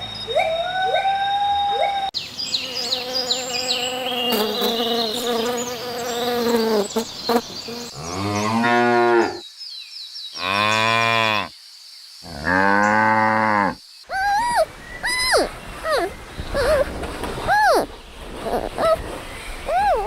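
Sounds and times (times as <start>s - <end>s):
faint insects chirping: 0.0s - 17.0s
cow mooing: 8.0s - 9.4s, 10.4s - 11.5s, 12.3s - 13.8s.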